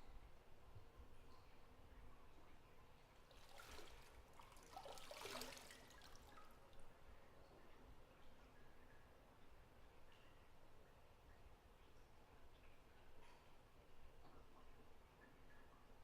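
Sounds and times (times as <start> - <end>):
bathwater trickling and splashing: 2.3 - 10.1.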